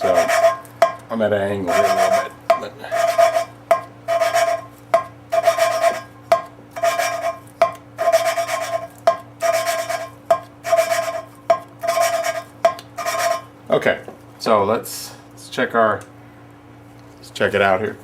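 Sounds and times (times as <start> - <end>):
valve lapping gritty rasp: 0.0 - 13.5.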